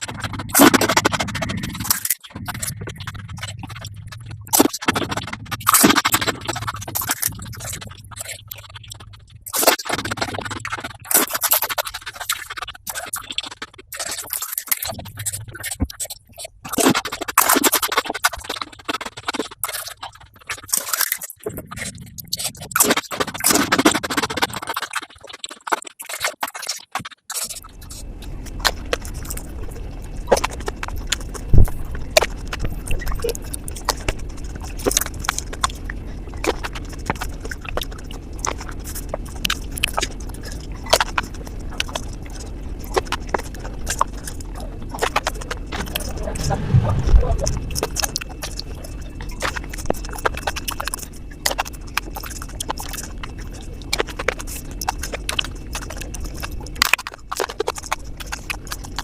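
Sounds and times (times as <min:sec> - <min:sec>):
low hum: 0:00.0 - 0:11.1, 0:27.6 - 0:56.8
rapid crackling eating sounds: 0:00.0 - 0:59.0.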